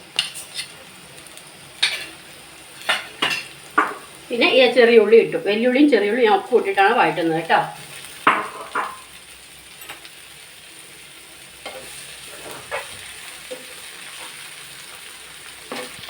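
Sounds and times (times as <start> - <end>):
shallots sizzling in a frying pan: 0.0 - 16.0
spoon scraping a pan: 0.1 - 0.8, 1.8 - 2.2, 2.8 - 4.1, 11.6 - 14.5, 15.7 - 16.0.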